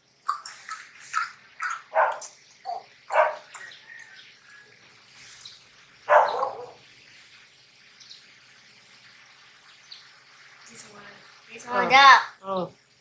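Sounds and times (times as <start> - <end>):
dog barking: 1.9 - 2.3, 3.1 - 3.5, 6.1 - 6.8.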